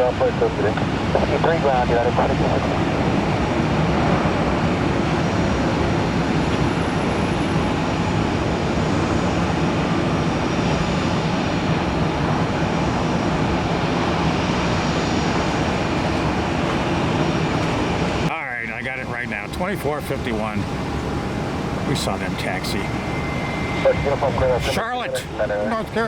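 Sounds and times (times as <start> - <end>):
jet engines rushing: 0.0 - 26.0
faint high whine: 5.3 - 26.0.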